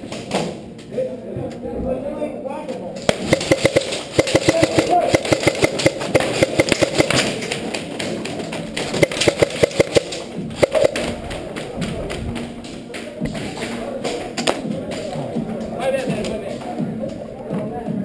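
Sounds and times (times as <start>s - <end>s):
airsoft guns firing: 3.1s - 11.8s.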